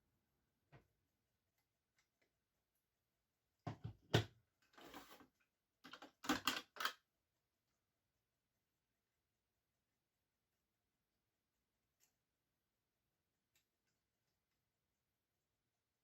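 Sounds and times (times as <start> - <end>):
clicks and clatter of small parts: 5.8 - 7.0.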